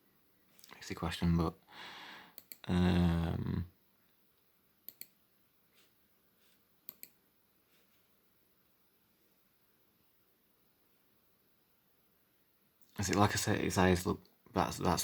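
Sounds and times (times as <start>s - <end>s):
computer mouse clicks: 2.4s - 2.6s, 4.8s - 5.2s, 6.8s - 7.2s
man humming: 2.6s - 3.7s.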